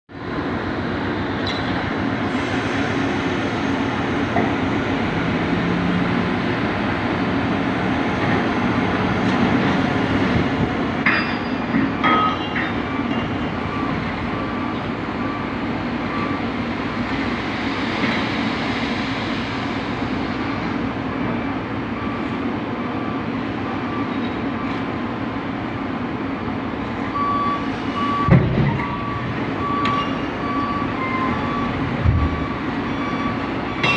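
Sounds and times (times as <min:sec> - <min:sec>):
reversing alarm beeping: 0:11.1 - 0:17.0, 0:20.4 - 0:24.9, 0:27.1 - 0:33.9
heavy machinery din: 0:28.0 - 0:33.9.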